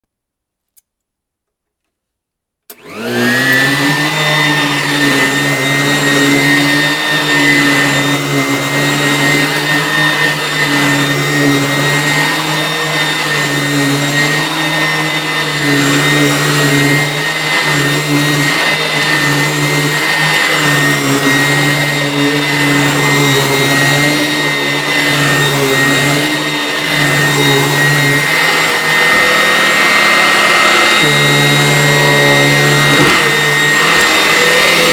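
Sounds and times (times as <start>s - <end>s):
vacuum cleaner whining: 2.7s - 34.9s.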